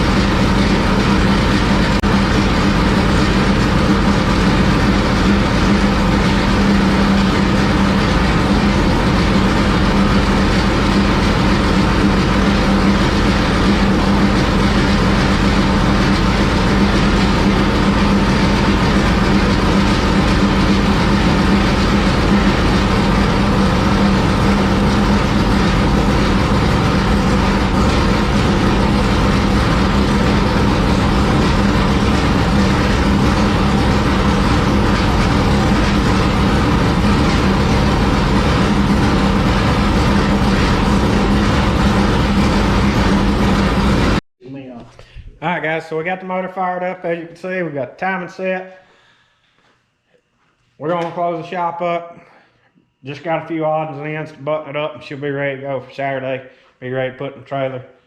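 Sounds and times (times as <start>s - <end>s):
race car engine running: 0.0s - 44.2s.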